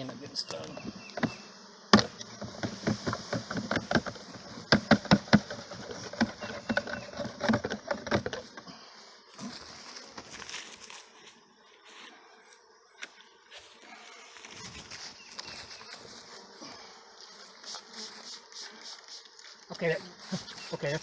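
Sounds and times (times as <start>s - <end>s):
bees buzzing: 0.0s - 21.0s
box knocking and rattling: 2.0s - 8.6s.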